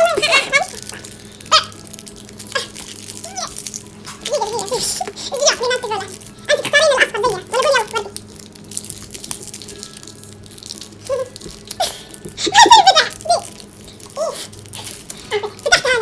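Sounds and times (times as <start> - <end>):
children laughing and giggling: 0.0 - 1.7, 4.2 - 8.1, 12.4 - 13.5, 15.3 - 16.0.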